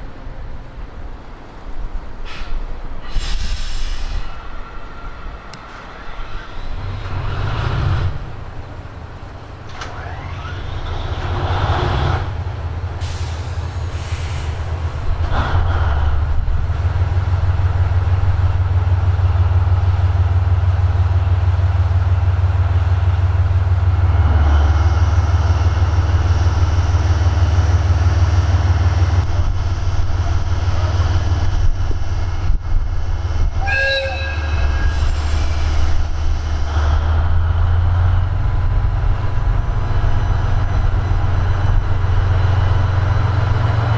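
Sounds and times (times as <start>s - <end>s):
locomotive engine throbbing: 4.5s - 43.9s.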